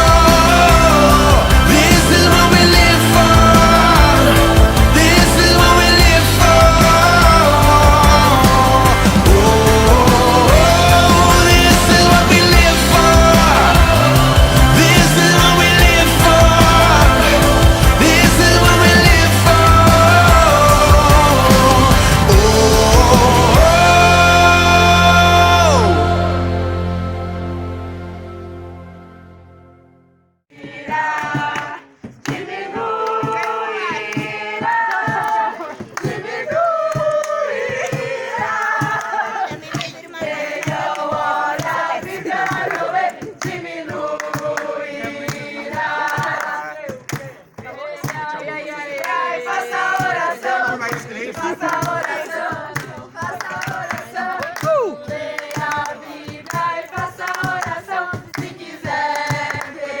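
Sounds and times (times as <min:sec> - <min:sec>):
sharp beat hits: 0:00.0 - 0:26.5
crowd singing in unison: 0:00.0 - 0:28.2, 0:30.5 - 1:00.0
background music: 0:00.0 - 1:00.0
hand claps: 0:30.9 - 1:00.0.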